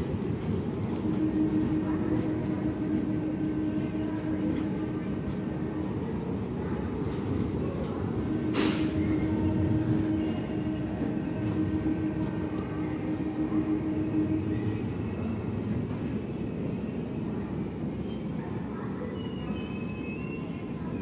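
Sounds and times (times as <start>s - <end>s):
train wheels rumbling on rails: 0.0s - 21.0s
steady low tone: 7.4s - 16.1s.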